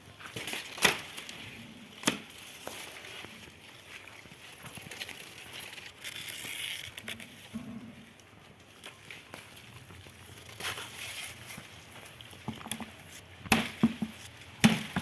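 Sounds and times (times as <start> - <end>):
dry leaves rustling and crackling: 0.1 - 7.5
stalks snapping: 2.0 - 2.4, 12.5 - 13.9.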